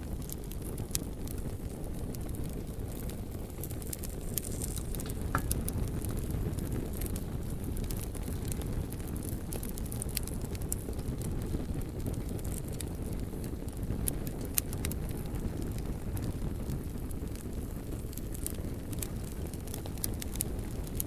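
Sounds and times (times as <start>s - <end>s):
fire crackling and popping: 0.0s - 21.0s.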